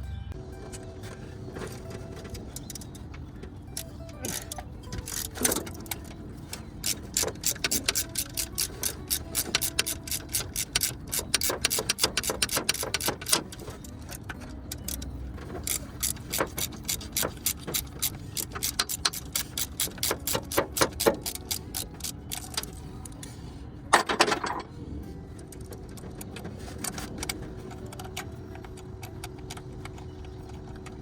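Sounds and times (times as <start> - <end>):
metal clatter: 0.6 - 24.8
ratchet wrench clicking: 3.7 - 23.3.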